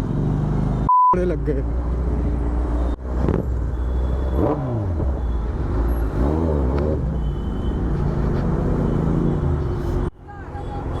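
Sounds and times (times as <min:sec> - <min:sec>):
motorcycle engine revving: 0:03.0 - 0:07.2.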